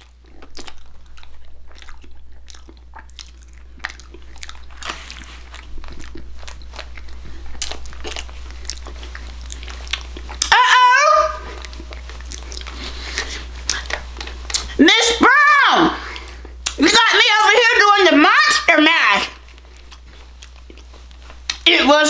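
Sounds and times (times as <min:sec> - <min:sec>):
chewing crunchy pastry: 0:00.0 - 0:10.6, 0:11.3 - 0:14.8, 0:18.6 - 0:21.9.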